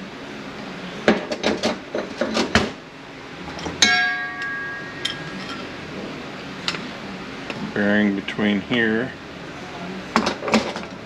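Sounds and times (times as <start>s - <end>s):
metal parts clinking: 3.6s - 5.8s
sharp metal clank ringing: 3.8s - 5.8s.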